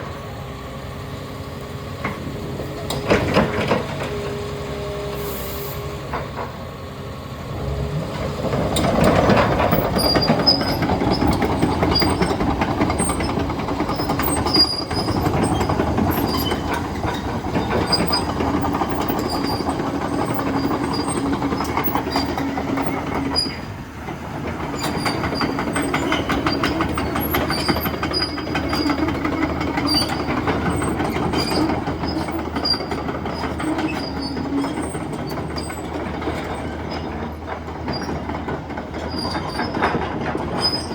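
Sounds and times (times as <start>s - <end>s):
diesel engine and hydraulics humming: 0.0s - 40.9s
excavator track links clattering: 1.9s - 40.9s.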